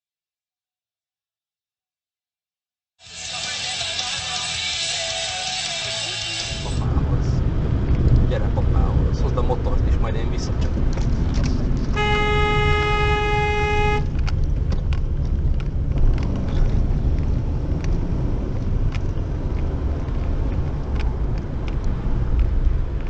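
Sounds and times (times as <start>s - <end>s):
road and engine rumble: 3.0s - 23.0s
car horn blast: 12.0s - 14.2s.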